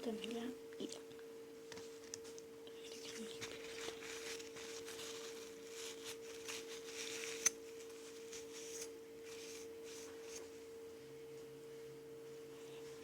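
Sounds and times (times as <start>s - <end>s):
low electrical hum: 0.0s - 13.0s
paper or plastic crinkling: 2.9s - 10.3s.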